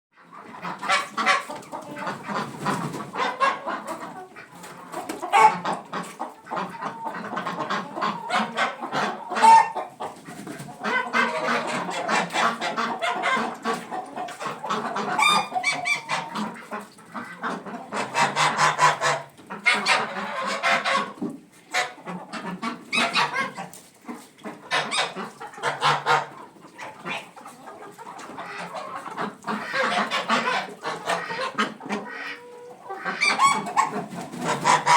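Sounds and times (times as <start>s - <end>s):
chicken squawks: 0.2s - 34.9s
chickens clucking: 0.2s - 34.9s.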